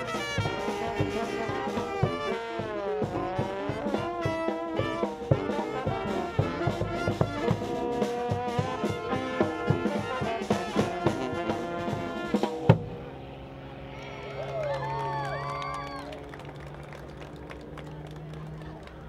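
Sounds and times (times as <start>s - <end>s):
steady drum beat: 0.0s - 13.0s
brass band playing: 0.0s - 13.6s.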